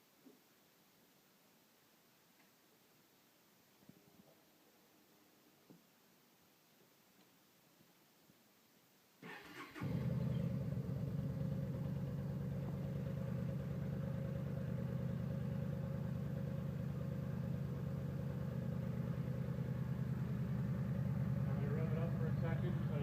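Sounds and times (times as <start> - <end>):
motorcycle engine idling: 9.3 - 23.0.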